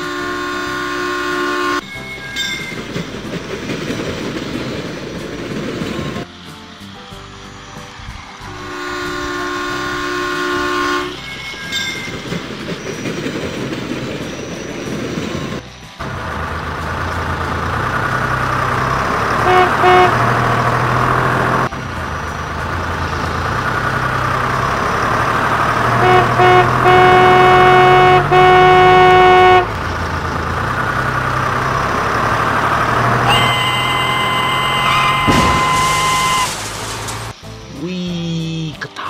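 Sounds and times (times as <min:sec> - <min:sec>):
electronic toy horn tooting: 0:00.0 - 0:01.8, 0:08.6 - 0:11.2, 0:19.3 - 0:20.7, 0:25.9 - 0:29.8, 0:33.2 - 0:36.5.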